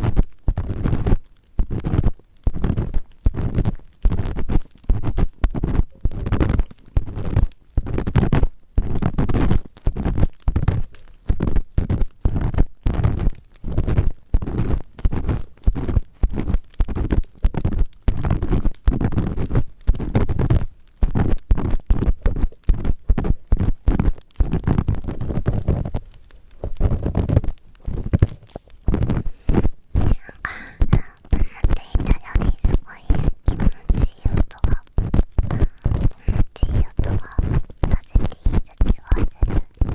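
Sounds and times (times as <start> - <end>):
ear pick scraping microphone: 26.7 - 39.9.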